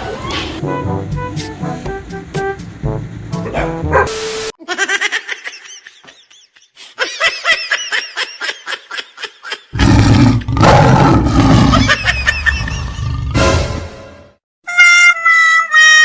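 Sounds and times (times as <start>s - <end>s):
tiger roar: 9.8s - 13.4s.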